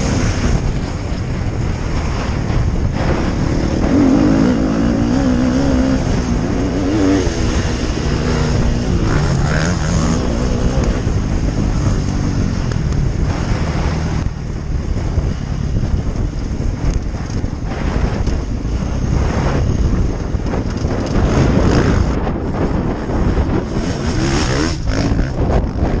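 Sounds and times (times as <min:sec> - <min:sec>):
wind buffeting microphone: 0:00.0 - 0:26.0
dirt bike engine revving: 0:01.8 - 0:14.3, 0:20.8 - 0:26.0.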